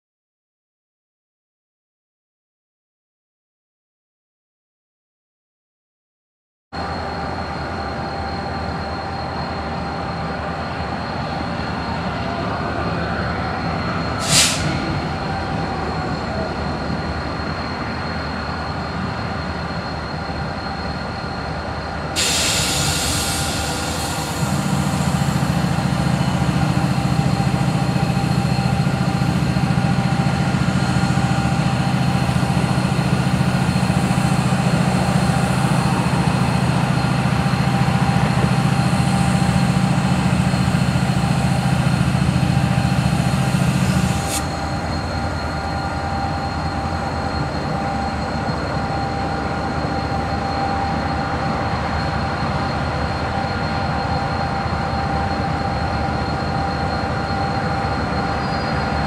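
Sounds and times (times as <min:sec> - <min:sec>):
diesel locomotive engine drone: 0:06.8 - 0:59.0
hiss: 0:14.2 - 0:14.8, 0:22.2 - 0:29.7, 0:42.6 - 0:45.6
brief sharp noise: 0:14.2 - 0:14.9.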